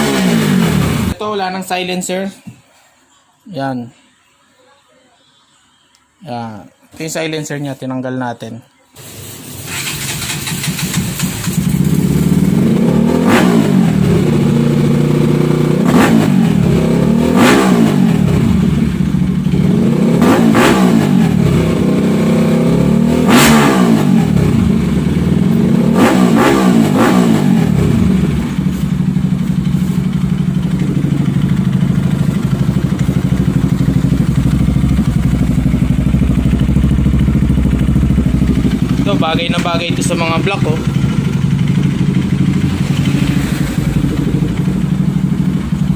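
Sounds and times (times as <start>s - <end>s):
motorcycle engine revving: 0.0s - 1.2s, 9.2s - 45.9s
motorcycle engine idling: 9.7s - 20.2s, 24.2s - 45.9s.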